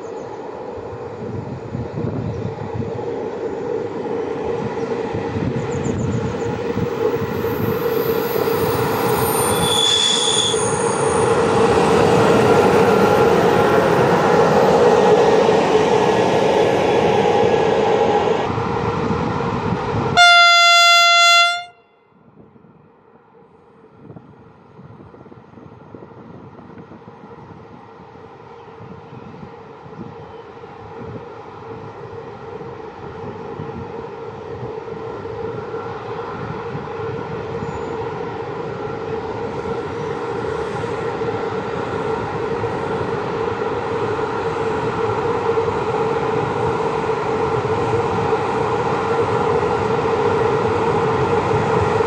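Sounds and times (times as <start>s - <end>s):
electric locomotive running: 0.0s - 21.8s
brief high tone: 20.2s - 21.9s
locomotive horn blast: 20.2s - 21.9s.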